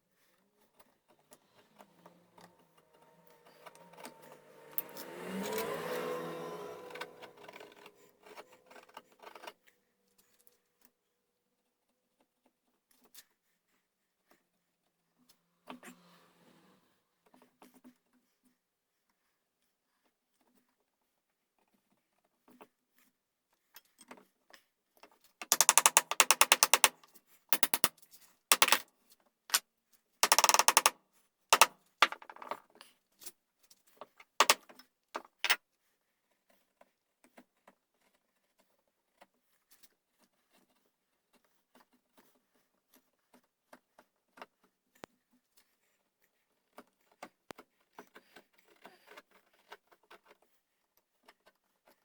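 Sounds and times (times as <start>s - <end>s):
hand tools scraping wood: 1.4s - 9.0s, 25.5s - 27.0s, 30.2s - 30.9s
sharp taps: 25.5s - 27.0s, 27.6s - 27.9s, 28.5s - 28.8s, 30.2s - 30.9s.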